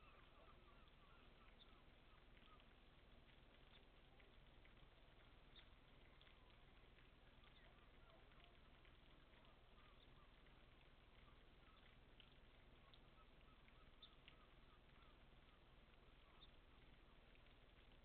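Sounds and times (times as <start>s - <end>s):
faint bird chirps: 0.0s - 4.4s, 5.0s - 18.0s
light rain: 0.0s - 18.0s
soft drop ticks: 0.0s - 18.0s.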